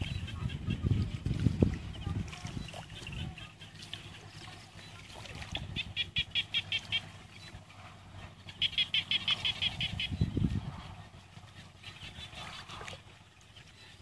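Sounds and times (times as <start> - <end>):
animal high chirps: 8.6 - 10.2.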